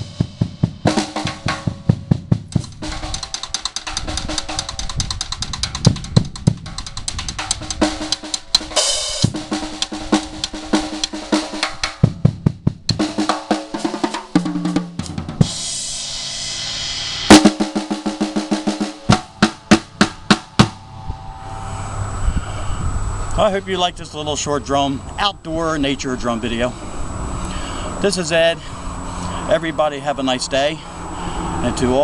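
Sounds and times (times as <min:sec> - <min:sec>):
cymbal crashes: 0:00.0 - 0:04.9, 0:07.4 - 0:12.3, 0:13.0 - 0:23.9
snare and bass drum strikes: 0:00.0 - 0:15.6, 0:17.3 - 0:20.8
tom fill: 0:17.3 - 0:22.9.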